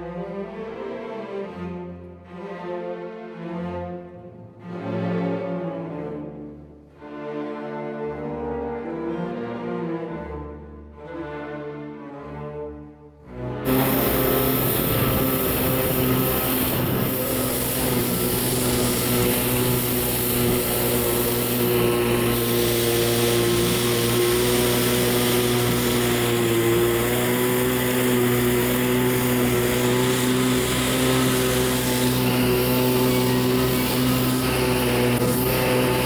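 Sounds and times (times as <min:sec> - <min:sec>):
jet ski engine running: 0:13.7 - 0:36.0
water and wind hiss: 0:13.7 - 0:36.0.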